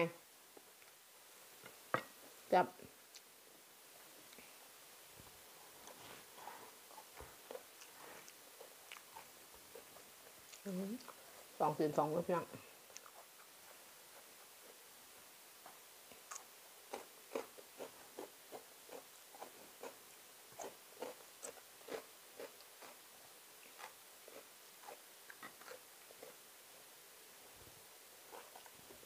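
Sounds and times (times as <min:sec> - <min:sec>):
person chewing with mouth open: 0:06.9 - 0:11.2, 0:12.8 - 0:14.8, 0:16.1 - 0:23.0, 0:23.6 - 0:26.4.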